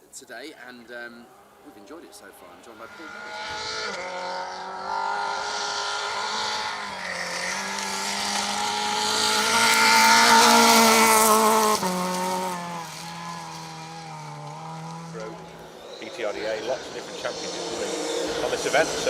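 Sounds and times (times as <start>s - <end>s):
rally car engine high revs: 1.3s - 19.0s.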